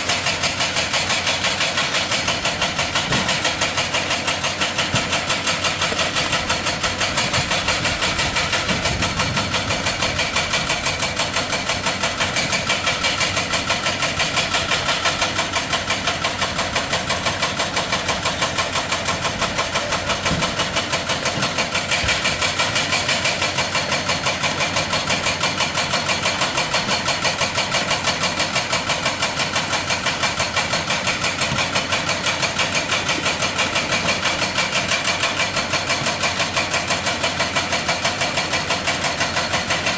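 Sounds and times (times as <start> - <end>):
hydraulic breaker hammering rock: 0.0 - 39.9.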